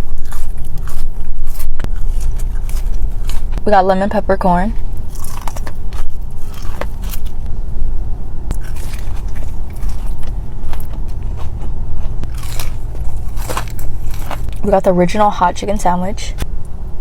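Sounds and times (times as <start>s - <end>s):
chewing crispy chicken: 0.0s - 3.6s, 4.9s - 7.4s, 8.5s - 14.6s
low rumble: 0.0s - 17.0s.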